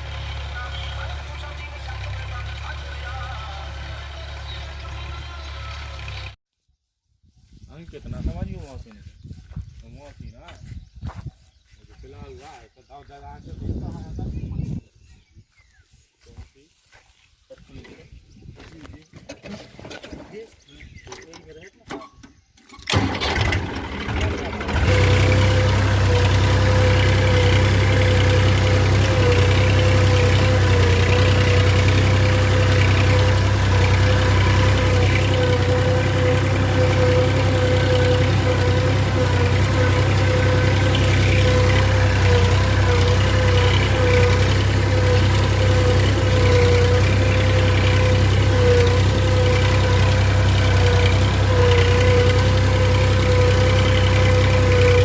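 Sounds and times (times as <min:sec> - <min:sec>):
tractor diesel engine running: 0:00.0 - 0:06.4, 0:22.7 - 0:55.0.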